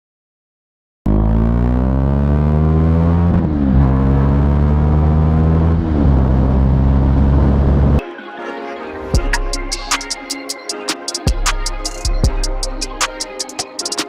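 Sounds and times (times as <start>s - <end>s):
motorcycle engine accelerating: 1.1s - 8.0s.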